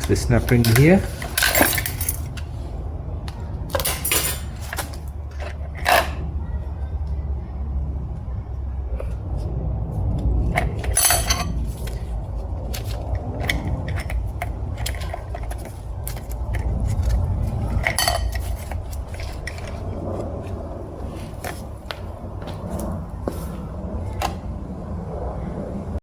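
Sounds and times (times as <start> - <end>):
metal plates clinking and scraping: 0.0 - 2.5, 3.7 - 6.2, 10.5 - 12.2, 12.8 - 20.0
low steady rumble: 0.0 - 26.0.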